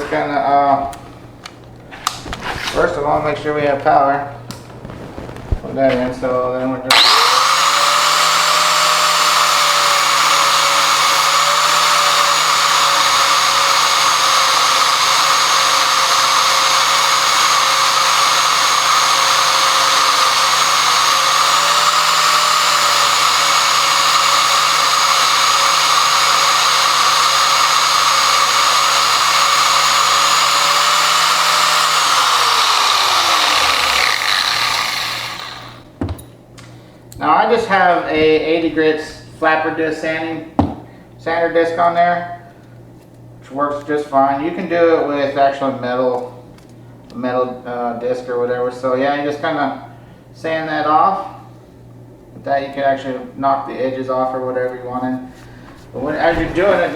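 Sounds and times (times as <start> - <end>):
angle grinder whining: 6.9 - 36.0, 55.2 - 56.9.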